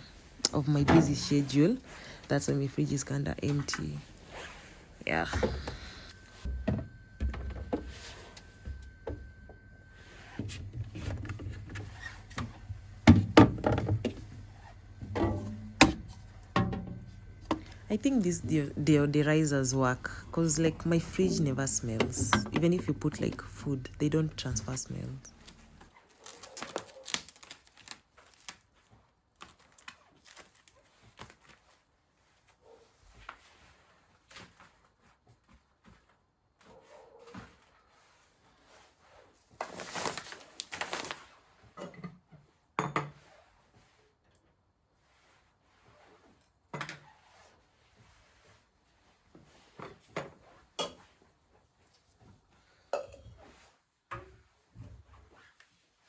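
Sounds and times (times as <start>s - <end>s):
things moved in a refrigerator: 0.2s - 2.3s, 3.5s - 44.7s
items clicking and knocking: 10.4s - 17.9s.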